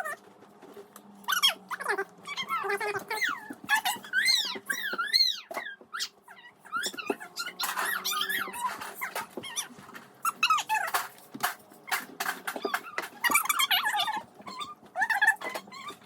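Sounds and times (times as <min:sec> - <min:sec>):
dog whining: 0:01.3 - 0:11.0, 0:11.9 - 0:16.0.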